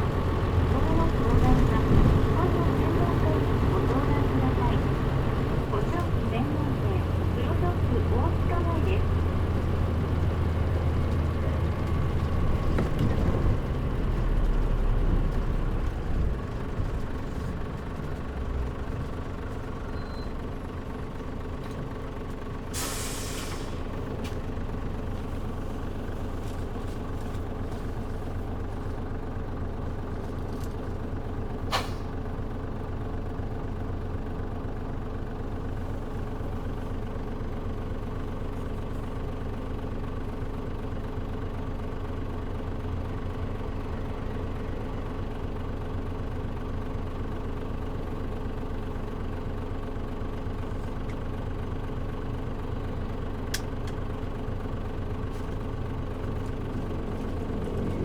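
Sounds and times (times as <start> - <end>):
bus diesel engine idling: 0.0 - 58.0
air brake hiss: 22.7 - 23.8, 31.7 - 32.2.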